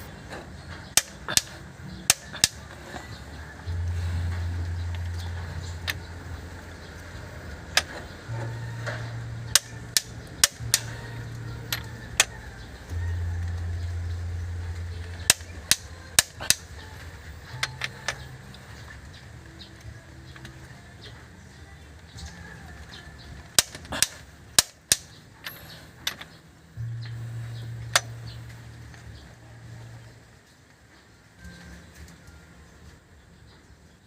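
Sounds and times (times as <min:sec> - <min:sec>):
low steady hum: 0:00.0 - 0:33.2
hand tools clicking on metal: 0:00.9 - 0:03.2, 0:06.9 - 0:11.0, 0:15.1 - 0:16.9, 0:23.5 - 0:26.4.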